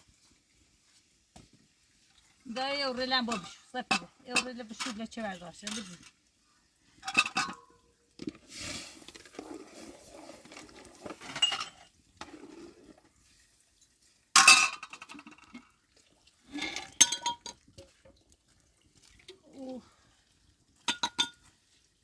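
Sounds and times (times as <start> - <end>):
dishes and glassware clinking: 7.0 - 7.7, 11.2 - 11.8, 16.8 - 17.6, 20.9 - 21.4.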